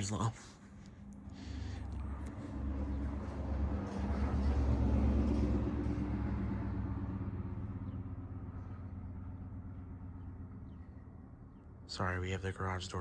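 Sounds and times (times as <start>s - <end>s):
vehicle passing by: 0.9s - 13.0s.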